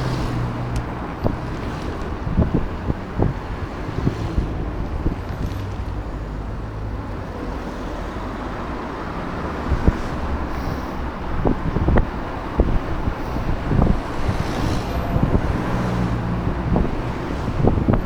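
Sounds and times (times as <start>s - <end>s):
wind on camera microphone: 0.0s - 7.1s, 8.6s - 18.0s.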